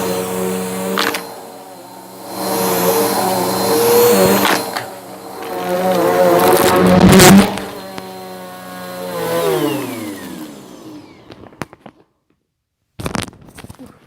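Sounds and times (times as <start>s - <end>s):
motor winding down whine: 0.0s - 11.8s
vacuum cleaner running: 0.0s - 12.0s
debris crunching in vacuum: 2.3s - 8.2s.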